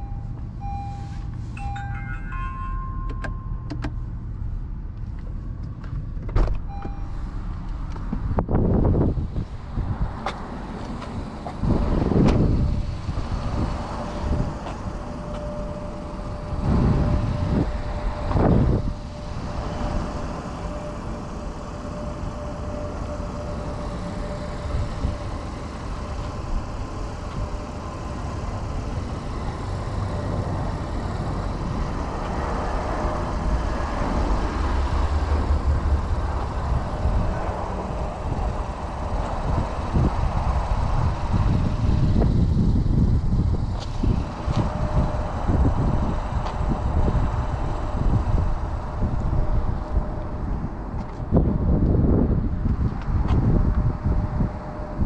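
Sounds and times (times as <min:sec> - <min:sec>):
car engine idling: 0:00.0 - 0:55.0
car door shutting: 0:00.8 - 0:04.0, 0:05.8 - 0:07.2, 0:10.2 - 0:12.6.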